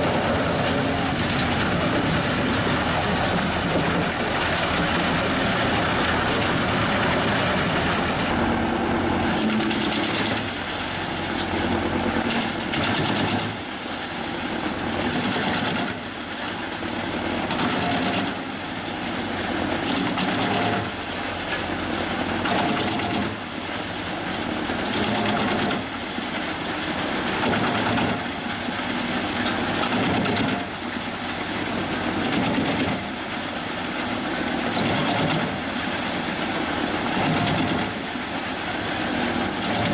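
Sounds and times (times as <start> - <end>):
tractor engine running: 0.0 - 13.8
wood chipper running: 0.0 - 39.9.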